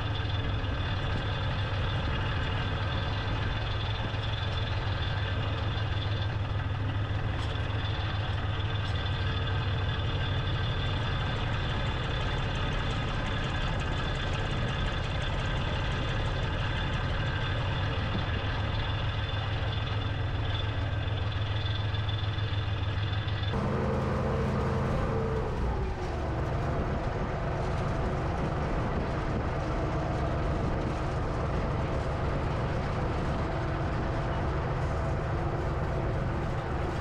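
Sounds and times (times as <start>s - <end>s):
tractor engine droning: 0.0s - 37.0s.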